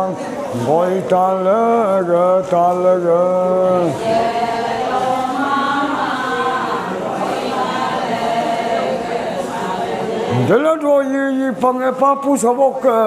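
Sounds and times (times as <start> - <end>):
person chanting a held line: 0.0 - 11.6
group of voices singing: 0.5 - 10.8.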